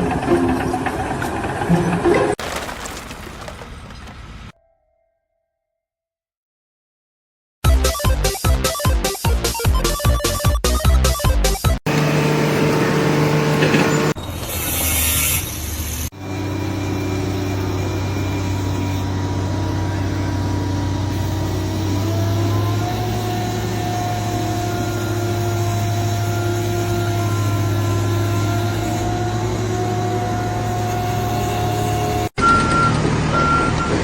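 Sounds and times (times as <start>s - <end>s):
machine engine running: 11.9s - 14.2s, 16.0s - 32.3s.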